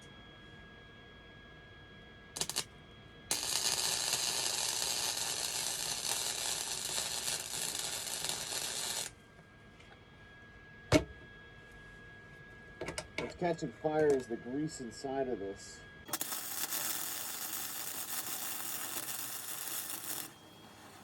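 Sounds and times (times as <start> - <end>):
welder arcing and crackling: 2.4 - 2.6, 3.3 - 9.1, 16.1 - 21.0.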